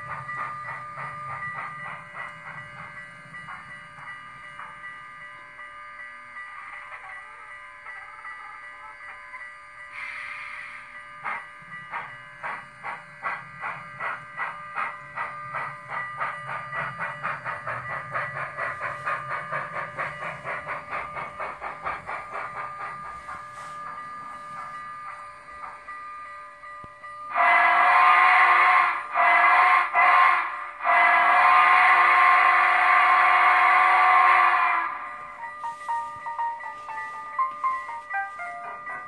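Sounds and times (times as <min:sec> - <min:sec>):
steam locomotive chuffs: 0:00.0 - 0:39.0
steam whistle blasts: 0:09.9 - 0:11.0, 0:27.3 - 0:35.1.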